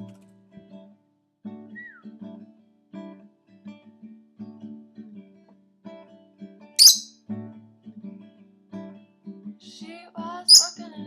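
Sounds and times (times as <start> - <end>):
bird squawk: 6.8 - 7.1, 10.5 - 10.8.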